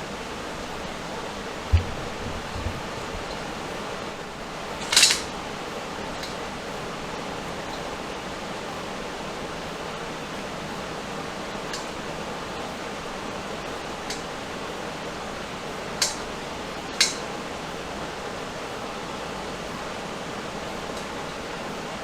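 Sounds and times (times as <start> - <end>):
background hiss: 0.0 - 22.0
metal hardware clink: 4.8 - 5.3.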